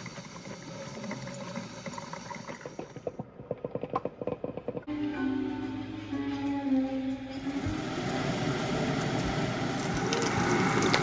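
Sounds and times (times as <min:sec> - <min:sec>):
music: 0:04.9 - 0:09.3.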